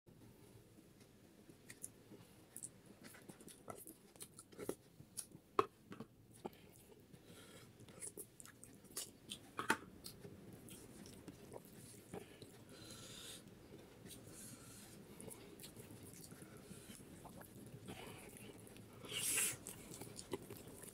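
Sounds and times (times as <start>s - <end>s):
biting and chewing: 7.8s - 20.9s.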